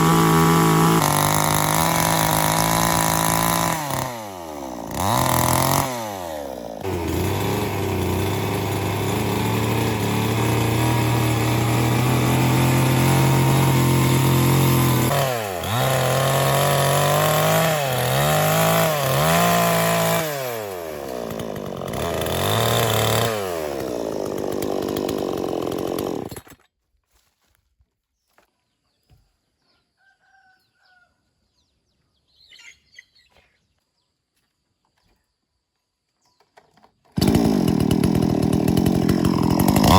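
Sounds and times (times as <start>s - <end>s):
chainsaw running at high revs: 0.0s - 26.6s, 37.2s - 39.9s.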